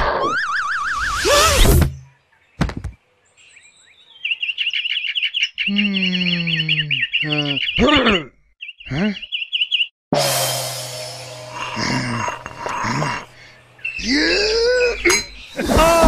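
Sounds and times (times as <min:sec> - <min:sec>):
bird tweets: 0:02.0 - 0:09.9, 0:13.4 - 0:15.6
man groaning: 0:11.5 - 0:13.4, 0:14.0 - 0:15.0, 0:15.6 - 0:16.0.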